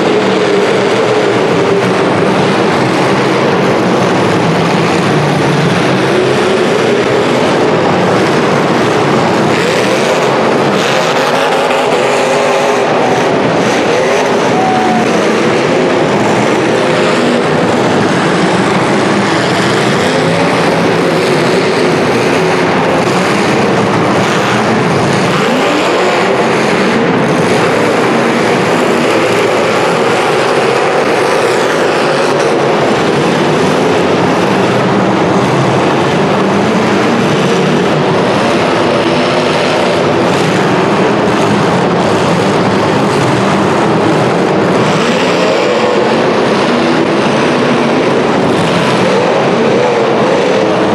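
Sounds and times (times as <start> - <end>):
car engines revving: 0.0 - 50.9.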